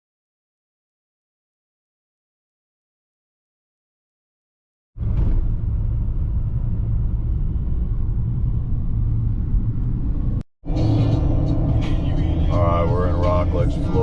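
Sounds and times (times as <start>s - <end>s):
vehicle engine and road noise: 5.0s - 14.0s.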